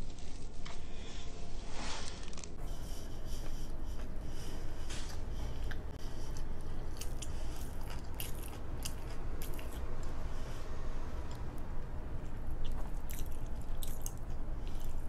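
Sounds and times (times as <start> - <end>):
low background hum: 0.0 - 15.0
chewing crispy food: 4.9 - 10.2, 11.2 - 15.0.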